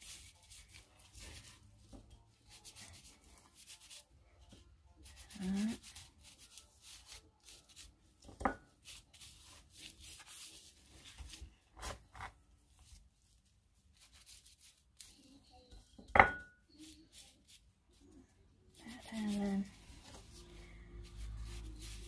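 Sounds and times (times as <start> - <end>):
hands rubbing pork skin: 0.0 - 4.1, 5.1 - 12.1, 12.7 - 15.2, 18.8 - 22.0.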